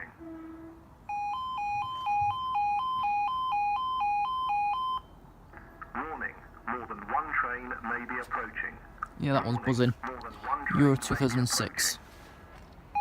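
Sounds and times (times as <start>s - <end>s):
level crossing two-tone alarm: 1.1s - 5.1s.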